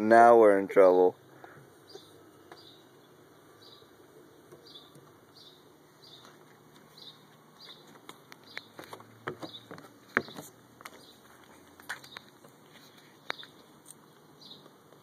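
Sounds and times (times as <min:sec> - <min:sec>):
bird chirping faintly: 0:01.4 - 0:11.3.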